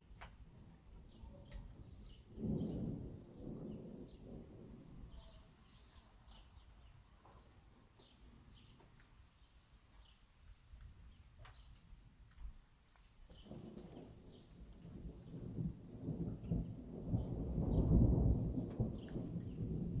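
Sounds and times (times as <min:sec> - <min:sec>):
faint birds chirping: 0:00.0 - 0:12.0, 0:12.9 - 0:15.5
distant thunder rumble: 0:00.2 - 0:05.9, 0:13.4 - 0:20.0.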